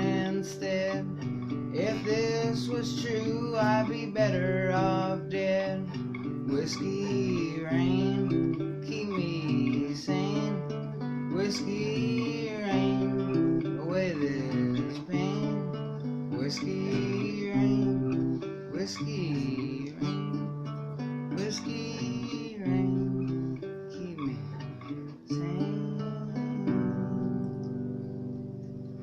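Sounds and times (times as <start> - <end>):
acoustic guitar strumming chords: 0.0 - 29.0.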